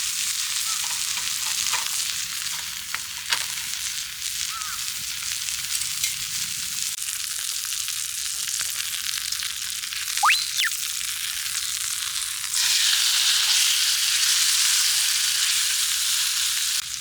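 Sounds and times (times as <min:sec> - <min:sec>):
food sizzling in a frying pan: 0:00.0 - 0:10.2, 0:10.9 - 0:17.0
sharp rising squeak: 0:10.2 - 0:10.7.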